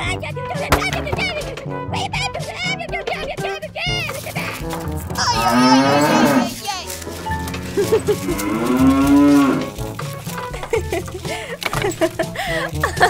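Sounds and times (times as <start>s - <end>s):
background music: 0.0s - 13.0s
cow mooing: 5.2s - 9.8s.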